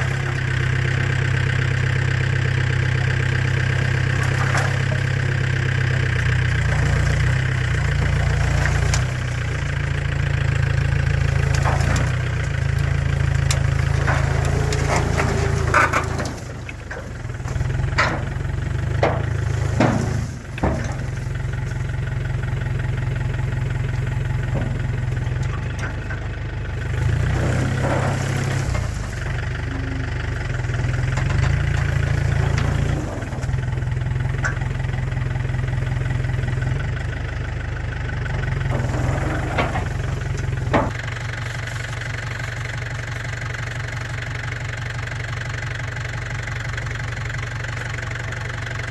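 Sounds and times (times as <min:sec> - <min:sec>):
tractor diesel engine running: 0:00.0 - 0:48.9
sharp knocks and clanks: 0:11.2 - 0:21.9, 0:38.6 - 0:41.0.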